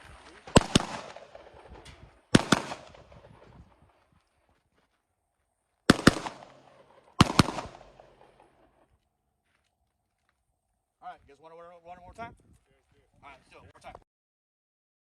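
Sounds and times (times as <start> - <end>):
pistol shots echoing: 0.5 - 3.5, 5.9 - 8.7.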